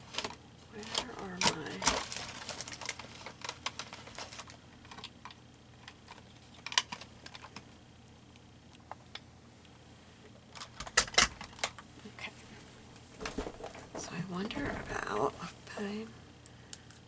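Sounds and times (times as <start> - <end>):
craft supplies rattling: 13.1 - 16.0.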